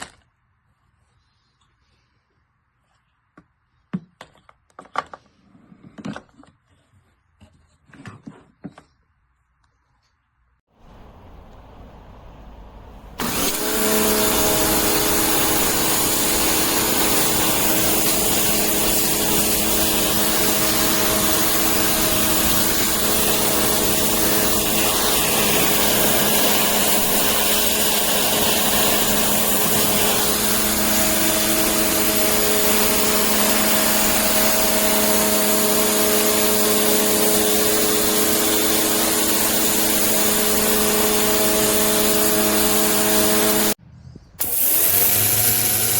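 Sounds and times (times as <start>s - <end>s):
electric pressure washer running: 13.2s - 43.8s, 44.4s - 45.9s.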